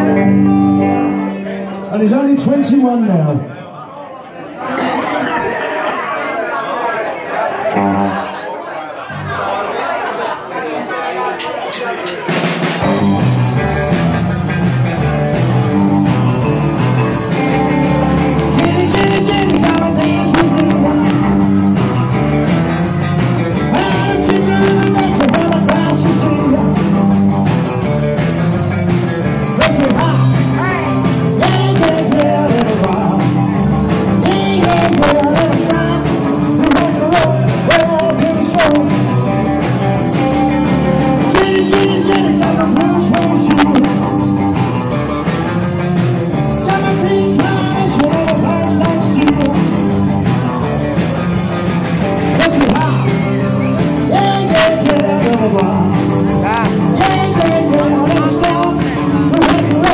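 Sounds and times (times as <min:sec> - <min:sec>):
rock band playing live: 0:00.0 - 0:03.4, 0:07.7 - 0:08.4, 0:11.3 - 0:59.9
drums hitting sharply: 0:11.4 - 0:54.3.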